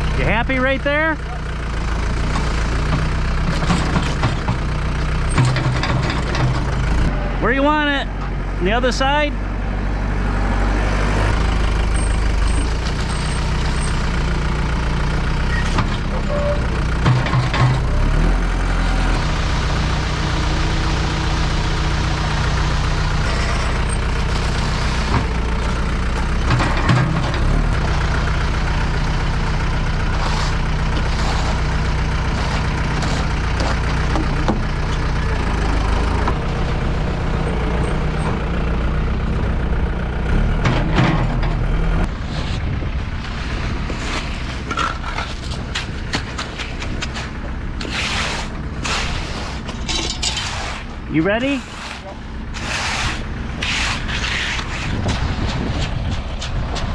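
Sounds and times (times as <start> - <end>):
diesel truck engine running: 0.0 - 56.9
knocks and scrapes: 2.3 - 7.0, 15.6 - 18.0, 23.2 - 27.9, 30.1 - 35.0, 40.6 - 56.9.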